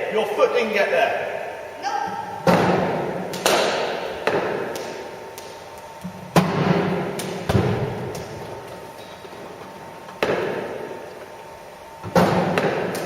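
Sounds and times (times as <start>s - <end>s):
bat striking ball: 2.4s - 5.6s, 6.3s - 8.3s, 10.2s - 11.0s, 12.1s - 13.0s
ball hitting surfaces: 2.4s - 9.1s, 10.1s - 11.0s, 12.0s - 13.0s.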